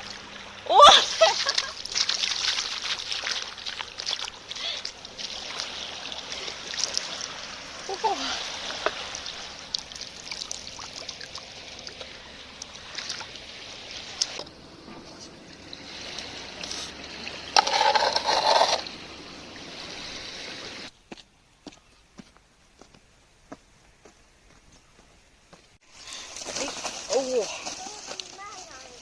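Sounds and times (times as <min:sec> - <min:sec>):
rushing splash: 0:00.0 - 0:14.4
water trickling and splashing: 0:00.0 - 0:21.2, 0:25.8 - 0:29.0.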